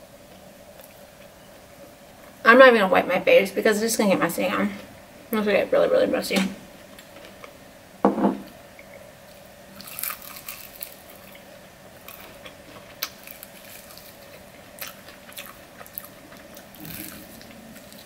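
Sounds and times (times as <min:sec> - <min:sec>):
faint steady hum: 0:00.0 - 0:18.0
wet chewing with crackles: 0:08.8 - 0:18.0.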